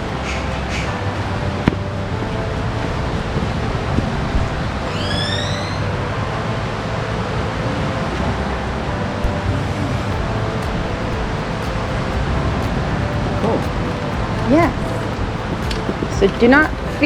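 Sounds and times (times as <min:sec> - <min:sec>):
rising bird whistle: 0:04.9 - 0:05.9.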